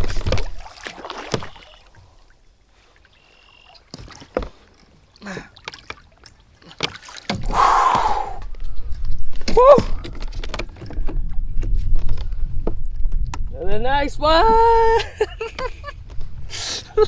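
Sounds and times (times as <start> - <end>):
light water movement: 0.0 - 12.3.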